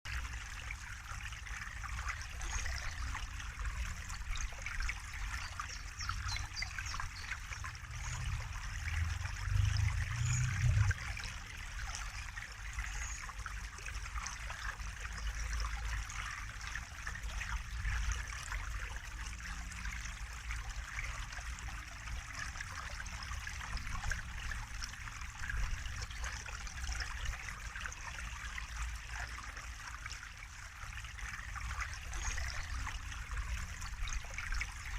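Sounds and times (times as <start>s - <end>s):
water trickling and splashing: 0.0s - 34.9s
low rumble: 7.6s - 11.3s.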